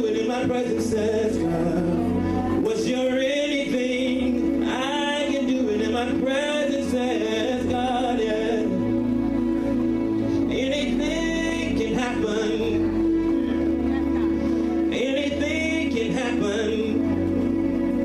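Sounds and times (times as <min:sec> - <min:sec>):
man singing gospel song: 0:00.0 - 0:09.0, 0:10.4 - 0:13.3, 0:14.6 - 0:17.7
held chords and bass: 0:00.0 - 0:18.0.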